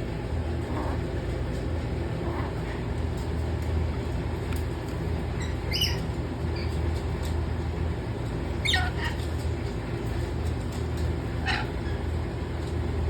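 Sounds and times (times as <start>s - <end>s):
steady low hum: 0.0s - 13.0s
parrot squawk: 5.7s - 6.1s, 8.6s - 9.3s, 11.4s - 12.0s.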